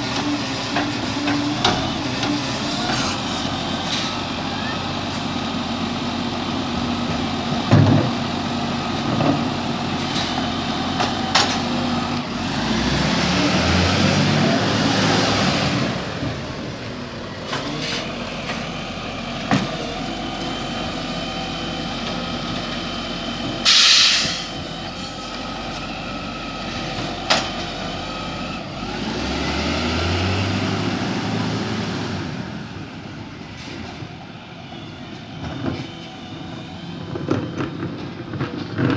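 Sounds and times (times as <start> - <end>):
garbage truck engine revving: 0.0 - 33.2
air brake hiss: 2.9 - 4.2, 23.6 - 25.5.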